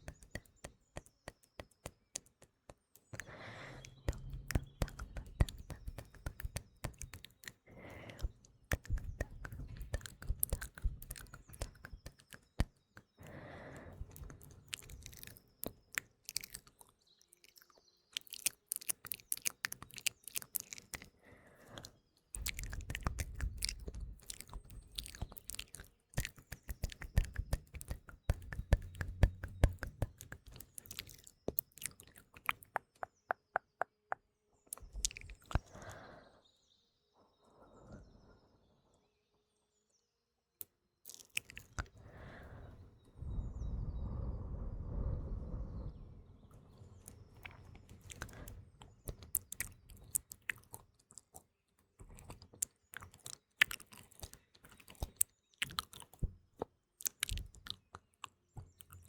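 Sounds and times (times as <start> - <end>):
wet mouth clicks and smacks: 0.0 - 36.0, 41.1 - 42.8, 47.1 - 59.0
faint birdsong: 0.0 - 56.2
breathing close to microphone: 3.1 - 12.4, 13.1 - 15.4, 21.0 - 25.8, 26.6 - 31.4, 34.8 - 36.6, 41.7 - 50.2.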